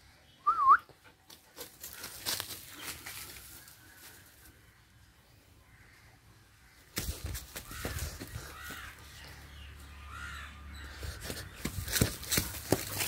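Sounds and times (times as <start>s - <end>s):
harsh bird calls: 4.7s - 13.0s.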